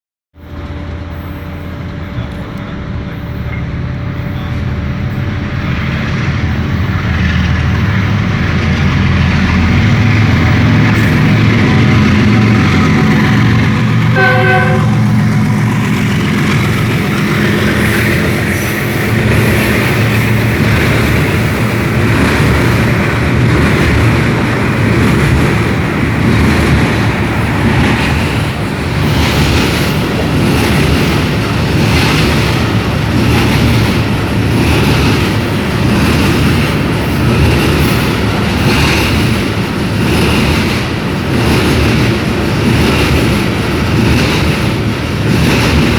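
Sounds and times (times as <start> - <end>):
train rumbling past: 0.4 - 45.9
locomotive horn: 10.4 - 15.5.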